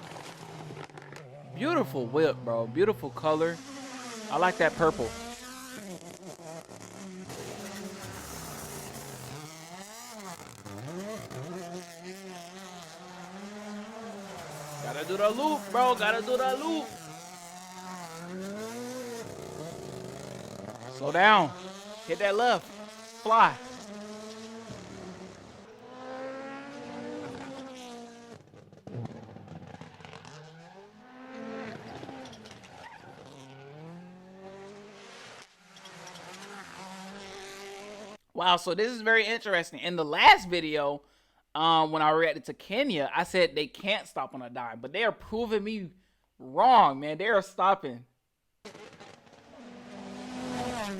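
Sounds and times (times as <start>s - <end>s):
rally car engine revving: 0.0s - 38.2s, 48.6s - 50.9s.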